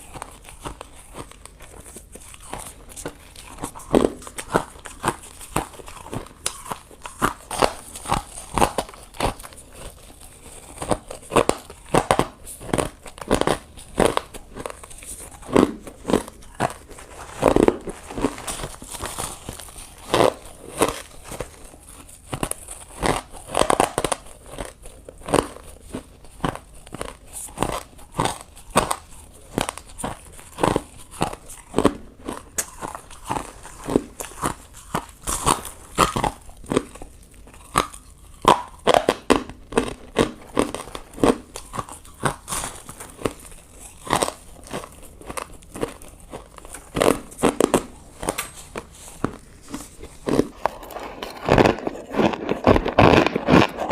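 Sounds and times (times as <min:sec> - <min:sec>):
chewing: 0:00.0 - 0:53.9
ice crunching: 0:00.1 - 0:25.6, 0:40.5 - 0:53.9.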